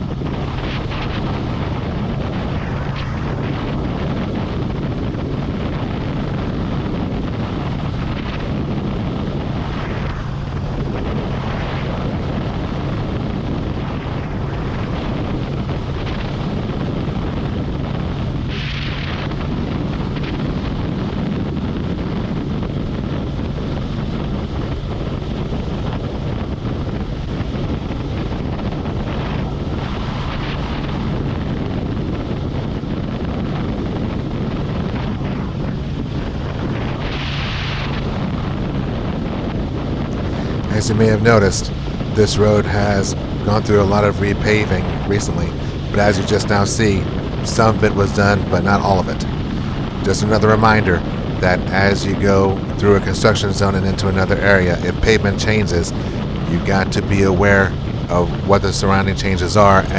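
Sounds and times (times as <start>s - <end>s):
wind buffeting microphone: 40.1s - 59.9s.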